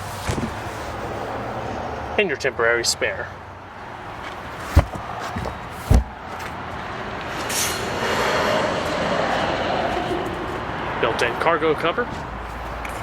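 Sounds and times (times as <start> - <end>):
passing road vehicle rushing: 3.4 - 13.0
sharp thump: 4.7 - 6.2.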